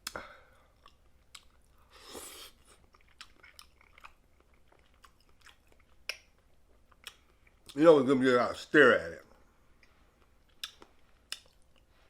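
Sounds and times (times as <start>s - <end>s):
wet mouth clicks and smacks: 0.8s - 1.7s, 4.9s - 7.8s, 9.8s - 11.9s.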